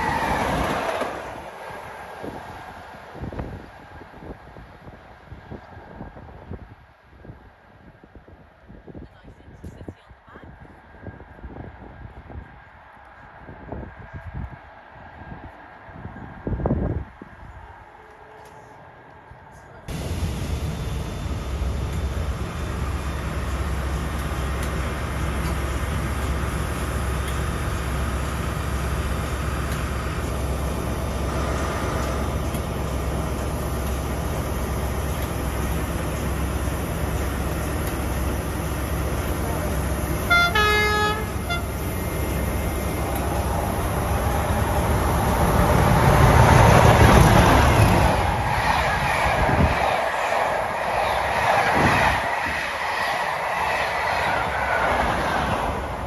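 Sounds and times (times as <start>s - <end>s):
train wheels rumbling on rails: 0.0s - 7.4s, 11.0s - 56.0s
train wheels clattering on rails: 20.6s - 40.3s.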